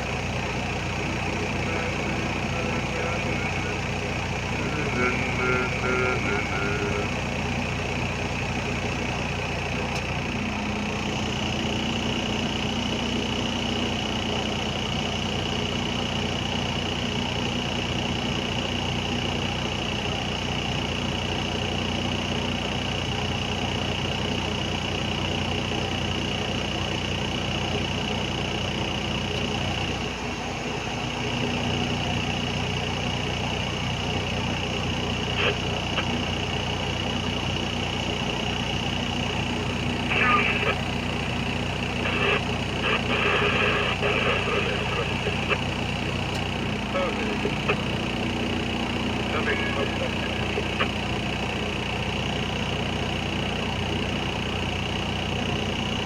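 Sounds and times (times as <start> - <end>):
high-pitched whine: 0.0 - 16.9, 28.8 - 54.7
diesel engine of heavy machine: 0.0 - 56.0.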